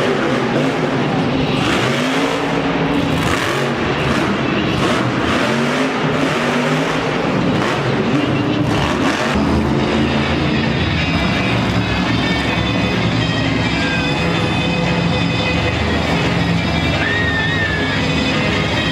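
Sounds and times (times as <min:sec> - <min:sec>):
monster truck engine revving: 0:00.0 - 0:18.9.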